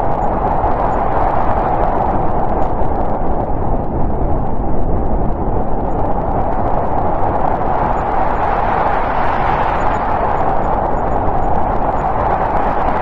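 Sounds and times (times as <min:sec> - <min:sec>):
snowstorm wind rushing: 0:00.0 - 0:13.0.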